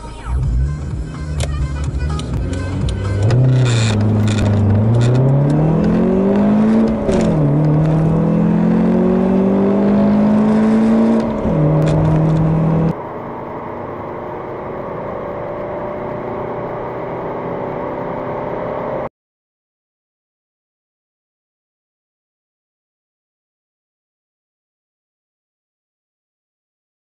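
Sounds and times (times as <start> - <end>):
car engine accelerating: 0.0 - 19.1.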